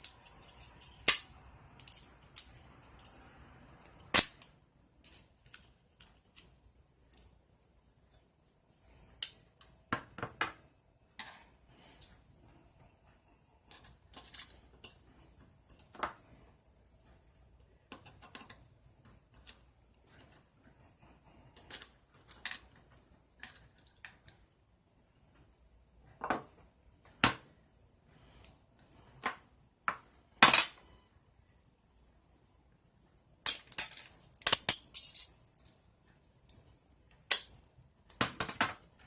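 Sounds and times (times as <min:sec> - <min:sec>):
small metal tools clicking: 0:00.0 - 0:03.2.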